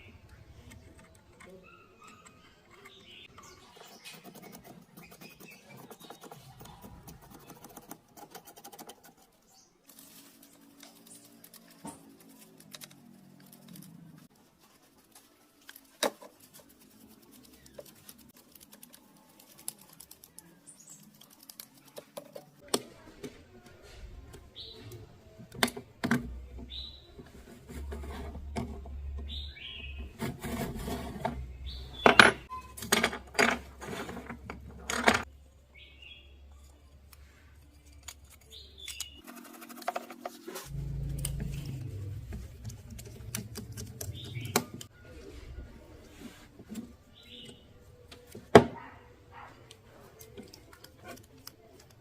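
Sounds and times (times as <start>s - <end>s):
small parts and tools clicking: 15.2s - 22.8s, 36.6s - 44.9s, 49.7s - 52.0s
low steady hum: 40.7s - 44.1s.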